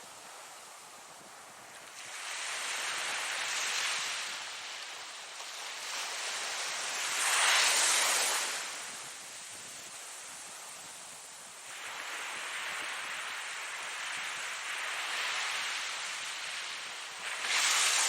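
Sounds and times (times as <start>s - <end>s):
ocean waves breaking: 14.8s - 18.0s.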